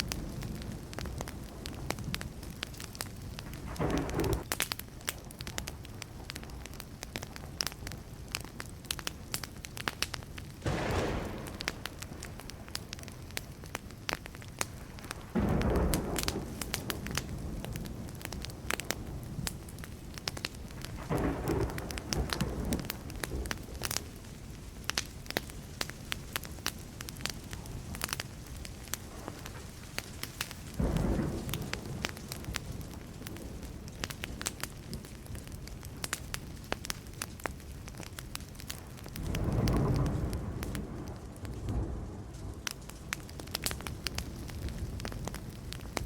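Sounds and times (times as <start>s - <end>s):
distant thunder rolling: 0.0s - 4.5s, 10.6s - 24.4s, 28.6s - 35.8s, 38.8s - 46.0s
wood fire crackling and popping: 0.0s - 46.0s.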